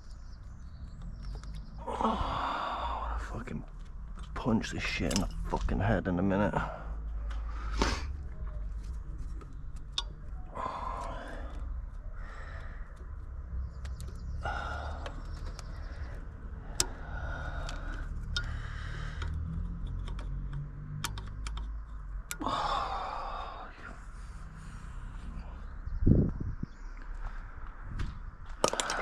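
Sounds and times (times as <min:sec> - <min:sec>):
small hand tools clicking and rattling: 0:08.8 - 0:22.5, 0:28.6 - 0:29.0.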